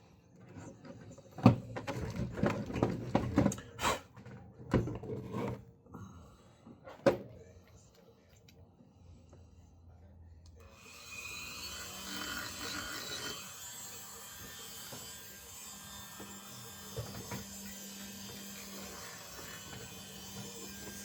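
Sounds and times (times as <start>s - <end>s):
sander sanding metal: 10.8s - 21.0s.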